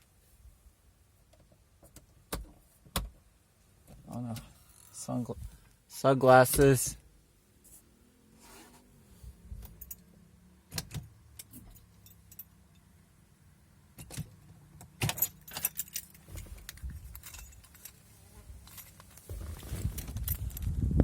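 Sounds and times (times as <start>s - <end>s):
small objects clicking and rattling: 15.0s - 18.0s, 18.6s - 20.7s.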